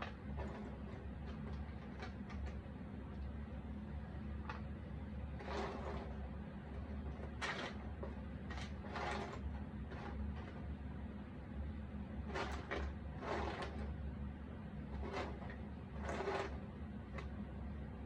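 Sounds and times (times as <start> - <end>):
steady low hum: 0.0 - 18.0
puzzle pieces scraping: 5.4 - 6.2, 7.0 - 10.6, 12.3 - 13.9, 14.9 - 16.6.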